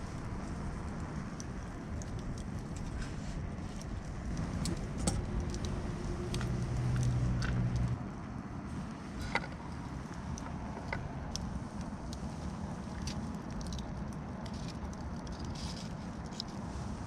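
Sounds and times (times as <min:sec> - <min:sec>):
light clicks and rattles: 0:09.2 - 0:16.6.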